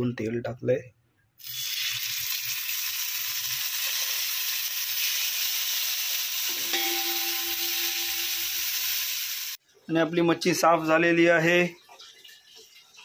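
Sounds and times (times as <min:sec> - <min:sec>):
crabs sizzling in hot oil: 0:01.4 - 0:09.6.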